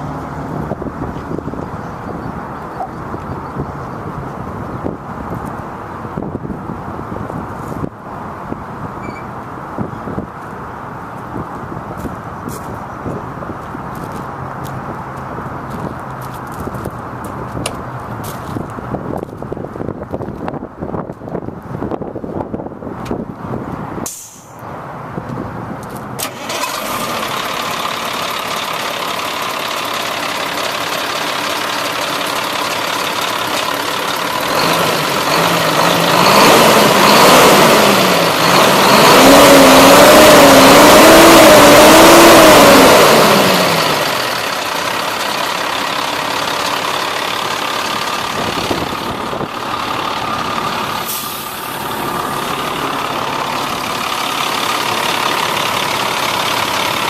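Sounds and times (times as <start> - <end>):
diesel truck engine idling and revving: 0.0 - 57.0.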